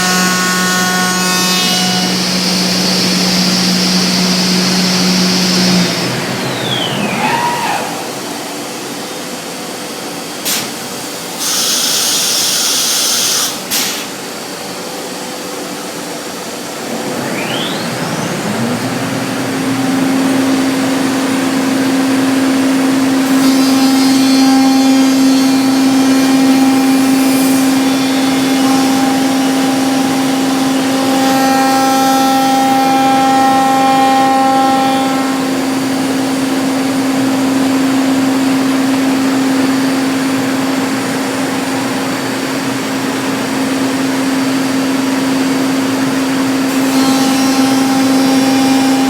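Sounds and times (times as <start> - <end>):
router spindle whine: 0.0 - 49.0
hiss: 1.4 - 14.5.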